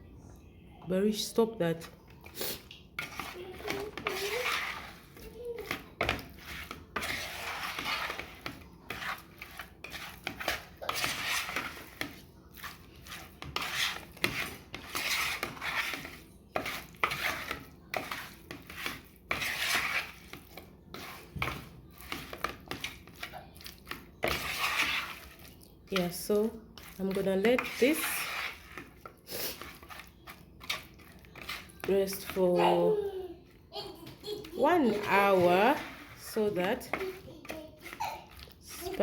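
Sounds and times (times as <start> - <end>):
bowl and utensils scraping: 1.1 - 39.0.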